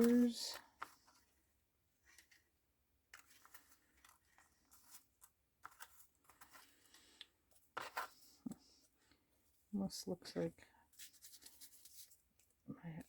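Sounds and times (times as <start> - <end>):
paper rustling: 3.1 - 8.4, 10.9 - 12.2.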